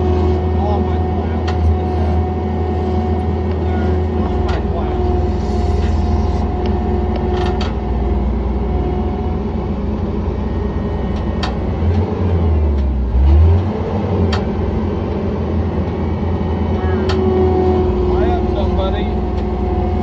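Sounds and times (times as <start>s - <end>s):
diesel engine running: 0.0s - 20.0s
sharp clicks and knocks: 6.6s - 7.8s, 11.1s - 12.1s, 14.2s - 14.5s.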